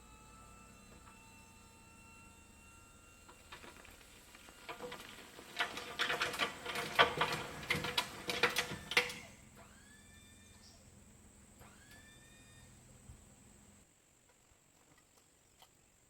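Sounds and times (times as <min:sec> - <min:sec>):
crushed stone clattering: 0:03.3 - 0:09.2.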